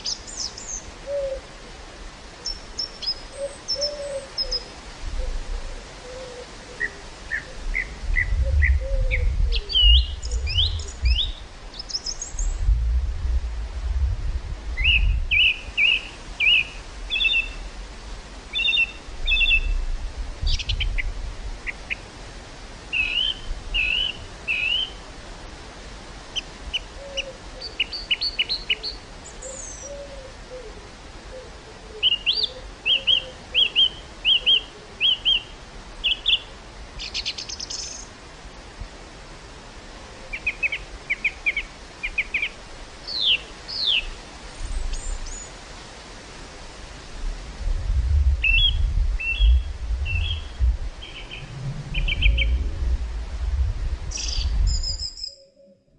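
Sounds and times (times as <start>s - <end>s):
birds chirping and trilling: 0.0s - 1.4s, 2.4s - 4.7s, 6.8s - 12.6s, 14.8s - 17.7s, 40.3s - 45.5s, 48.4s - 52.6s, 54.1s - 55.9s
wind rumbling on microphone: 0.0s - 27.6s, 40.9s - 55.9s
low cooing call: 1.0s - 1.8s, 3.2s - 11.4s, 26.8s - 27.9s, 28.7s - 35.4s, 48.2s - 53.3s.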